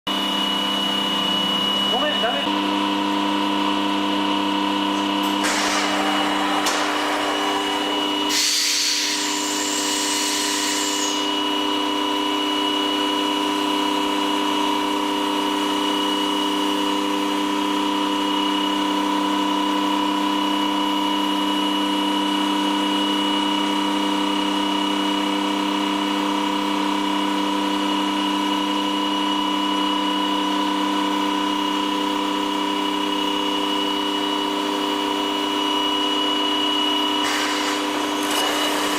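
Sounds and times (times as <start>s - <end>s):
cnc spindle whine: 0.1s - 38.9s
cutter hissing through wood: 5.3s - 11.3s, 37.2s - 38.9s.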